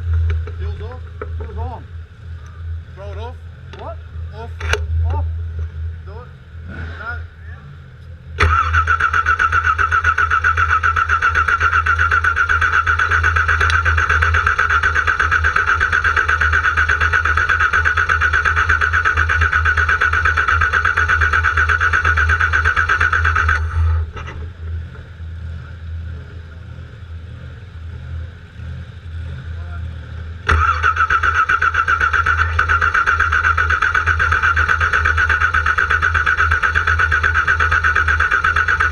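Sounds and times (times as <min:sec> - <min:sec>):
low rumble: 0:00.0 - 0:08.6
car starter cranking engine: 0:08.4 - 0:25.1, 0:30.4 - 0:38.9.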